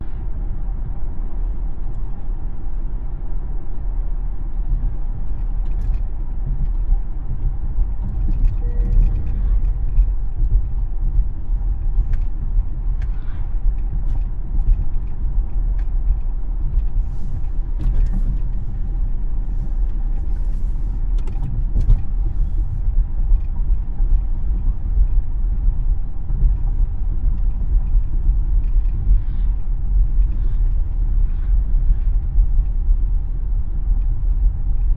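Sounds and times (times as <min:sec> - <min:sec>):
car tyre and road noise: 0:00.0 - 0:34.9
brief faint tone: 0:08.6 - 0:09.2.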